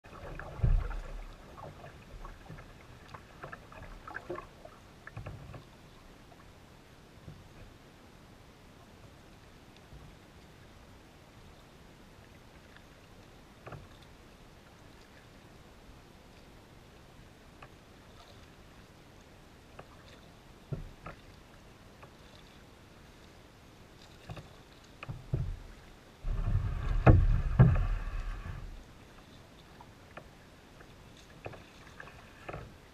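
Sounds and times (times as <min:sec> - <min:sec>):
paddle splashes and drips: 0:00.0 - 0:06.6, 0:08.8 - 0:32.9
low thump: 0:26.2 - 0:28.8
rushing scraping noise: 0:26.2 - 0:28.8.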